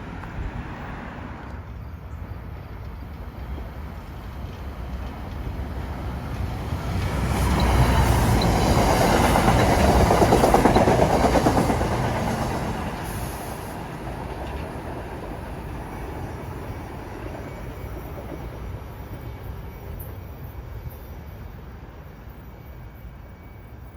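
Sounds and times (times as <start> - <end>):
train wheels clattering over rails: 2.7 - 18.8.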